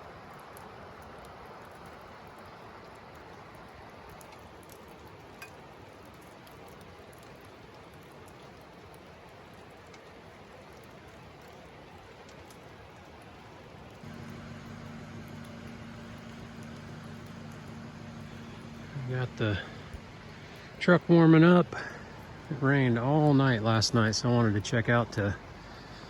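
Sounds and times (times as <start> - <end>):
rain falling: 0.0 - 26.0
drops ticking: 14.0 - 26.0
sharp drip: 14.0 - 26.0.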